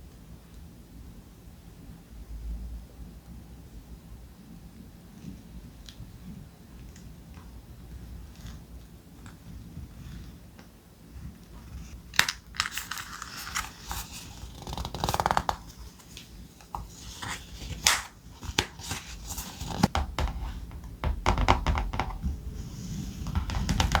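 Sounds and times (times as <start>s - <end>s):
thick paper rustling: 11.8s - 19.9s.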